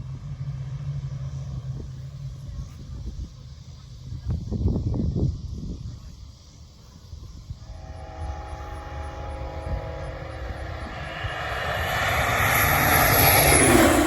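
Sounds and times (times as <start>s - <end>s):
propeller airplane engine: 7.8s - 14.0s.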